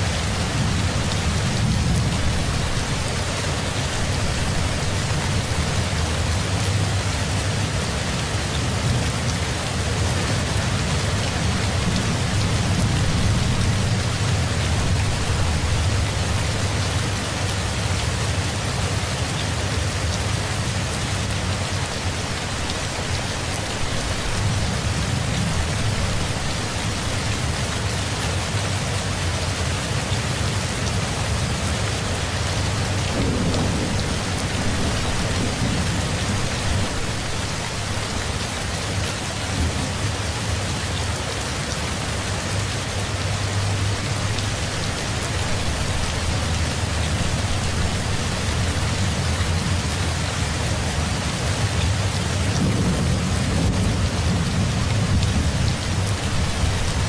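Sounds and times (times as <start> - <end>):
steady rain falling: 0.0 - 57.0
distant thunder rumble: 0.1 - 7.3, 8.8 - 17.8, 32.6 - 40.7, 51.8 - 57.0.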